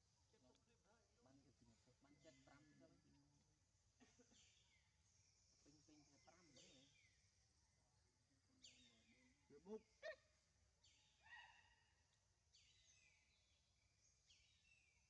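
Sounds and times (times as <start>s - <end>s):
faint forest birdsong: 0.0s - 15.0s.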